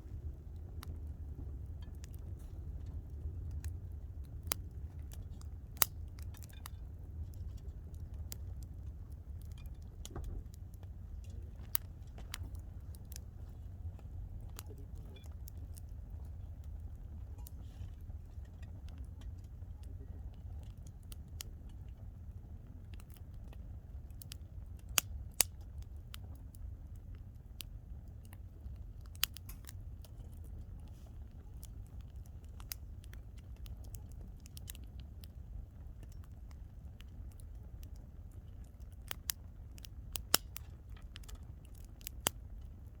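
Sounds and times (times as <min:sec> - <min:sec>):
campfire crackling: 0:00.0 - 0:43.0
steady low rumble: 0:00.0 - 0:43.0.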